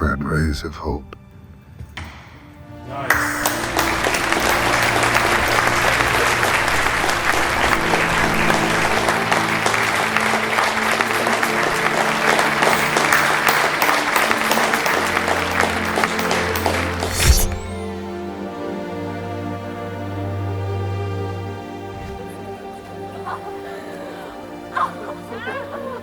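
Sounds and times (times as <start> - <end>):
background music low notes: 0.0 - 26.0
crowd applauding: 3.1 - 18.1.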